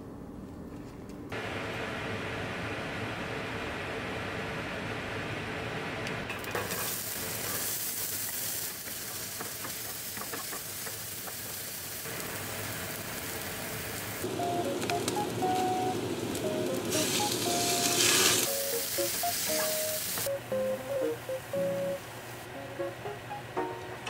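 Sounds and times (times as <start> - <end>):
onion sizzling in oil: 6.4 - 22.4.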